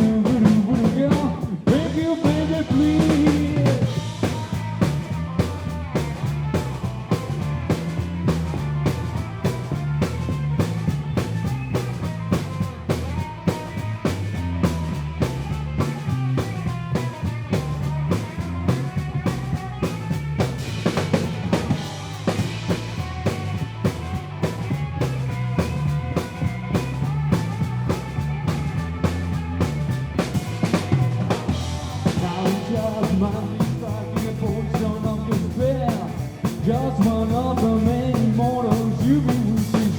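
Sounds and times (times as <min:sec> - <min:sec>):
drum kit beat: 0:00.0 - 0:39.9
live band instrumental: 0:00.0 - 0:39.9.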